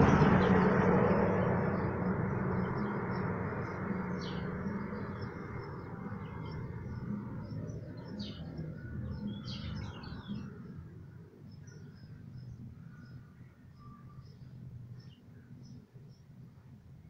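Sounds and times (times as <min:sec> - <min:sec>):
low steady rumble: 0:00.0 - 0:09.4
small birds chirping: 0:00.3 - 0:16.6.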